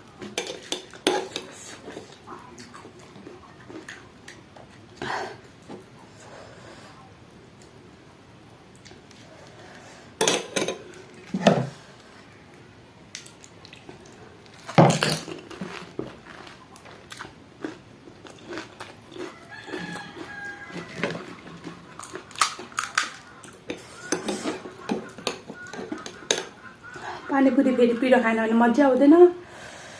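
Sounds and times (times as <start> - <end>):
chewing with wet mouth noises: 0.9 - 5.6, 13.2 - 14.7, 15.3 - 27.2
crisp food crunching: 13.2 - 26.8.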